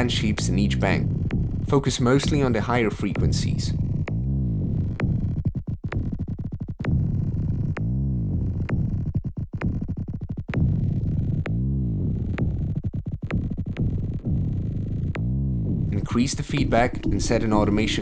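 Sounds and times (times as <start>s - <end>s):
pitch-bending low thumps: 0.0s - 2.6s, 10.6s - 18.0s.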